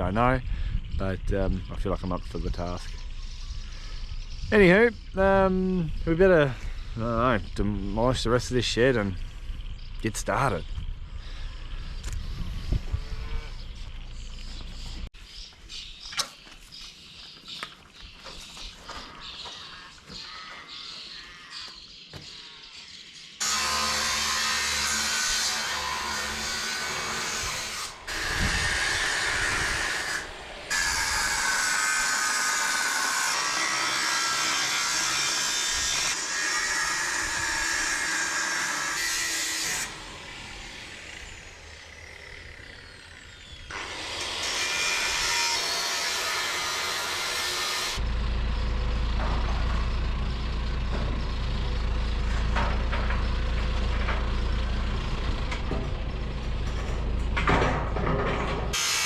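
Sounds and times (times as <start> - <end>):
wood and metal scraping and cracking: 16.3 - 22.5, 48.6 - 59.0
heavy machinery engine drone: 48.0 - 58.8.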